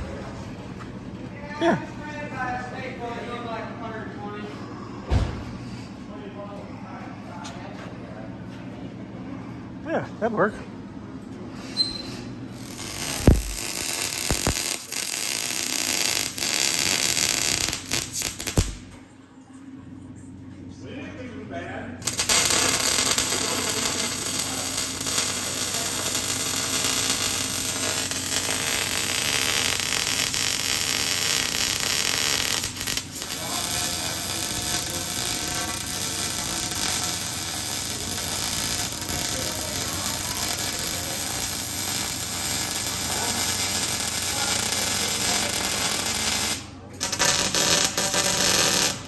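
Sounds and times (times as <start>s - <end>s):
arc welding: 11.7s - 18.9s, 22.0s - 49.0s.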